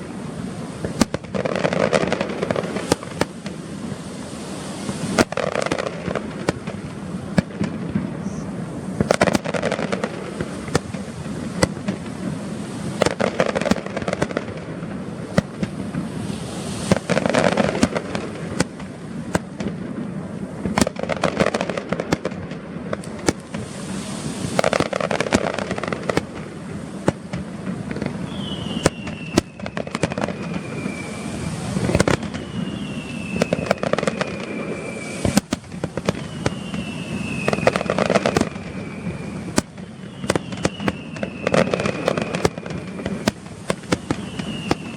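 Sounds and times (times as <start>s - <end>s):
fireworks bangs and crackling: 0.0s - 44.9s
falling firework whistle: 0.7s - 6.8s, 15.2s - 19.6s, 23.2s - 44.9s.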